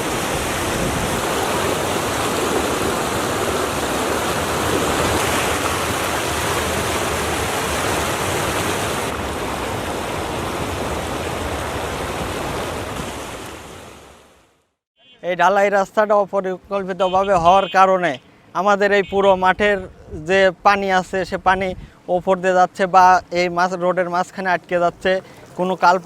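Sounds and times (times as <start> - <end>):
flowing water rushing: 0.0 - 14.4, 23.7 - 26.0.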